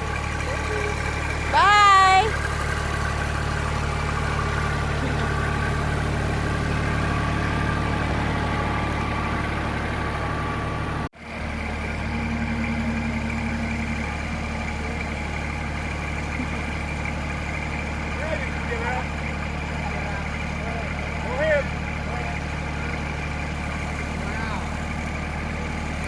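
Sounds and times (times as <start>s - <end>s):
tractor engine idling: 0.0s - 26.0s.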